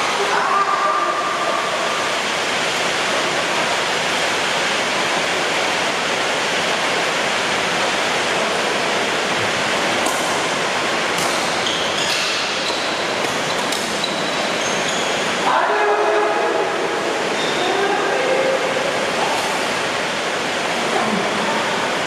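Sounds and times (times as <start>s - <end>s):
heavy rain pouring: 0.0s - 22.0s
short high squeaks and clicks: 11.6s - 12.9s, 13.5s - 15.2s.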